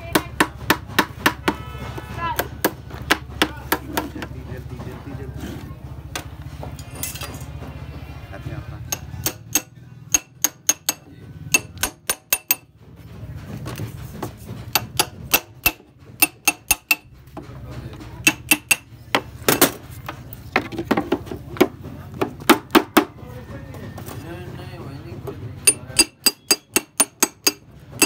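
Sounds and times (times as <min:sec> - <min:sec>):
hammer striking metal: 0:08.9 - 0:12.7, 0:14.7 - 0:17.4, 0:18.2 - 0:19.8, 0:25.7 - 0:28.0.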